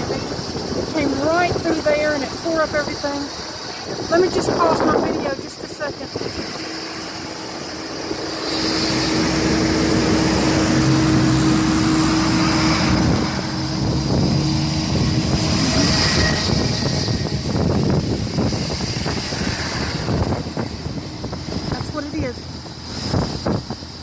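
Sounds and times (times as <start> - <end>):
car engine hum: 0.0 - 24.0
road and wind noise: 0.0 - 24.0
steady low tone: 6.2 - 22.9.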